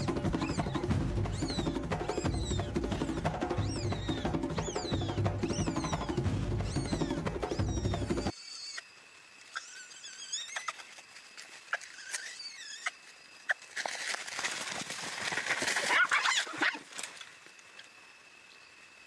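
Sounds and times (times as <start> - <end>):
animal squeaks: 0.0 - 8.8, 9.5 - 10.9, 11.7 - 13.6
sharp animal squeals: 0.0 - 8.9, 9.5 - 10.9, 11.7 - 13.6, 15.9 - 16.9.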